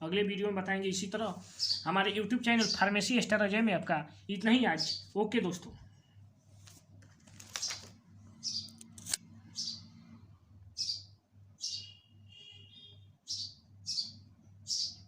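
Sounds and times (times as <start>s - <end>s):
small bird chirping: 1.5s - 2.9s, 7.5s - 10.0s, 10.7s - 15.0s.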